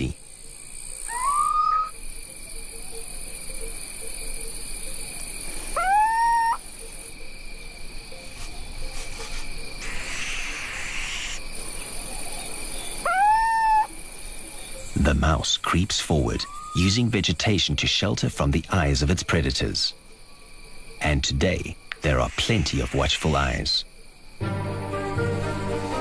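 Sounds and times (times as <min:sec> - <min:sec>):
crickets chirring: 0:00.0 - 0:26.0
owl calling: 0:01.0 - 0:02.0, 0:05.4 - 0:07.1, 0:08.3 - 0:11.5, 0:12.2 - 0:14.0, 0:16.2 - 0:17.0, 0:22.0 - 0:23.8.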